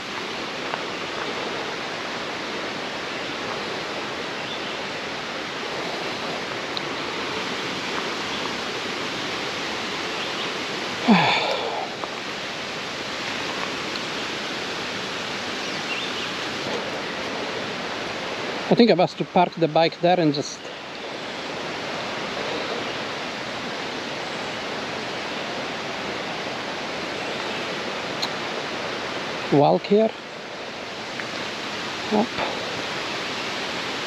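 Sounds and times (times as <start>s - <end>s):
mountain stream running: 0.0s - 34.0s
short falling human vocal sound: 11.0s - 12.0s.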